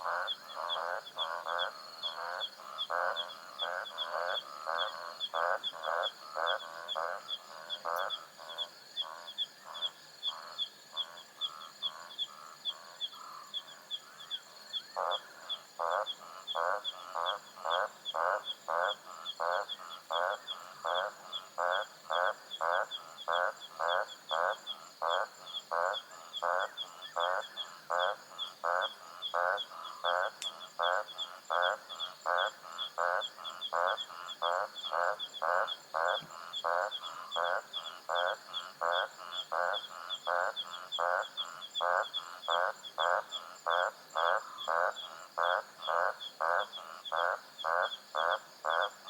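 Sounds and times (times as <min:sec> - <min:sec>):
frog croaking: 0:00.0 - 0:49.0
insects chirring: 0:00.0 - 0:49.0
insects ticking: 0:00.0 - 0:49.0.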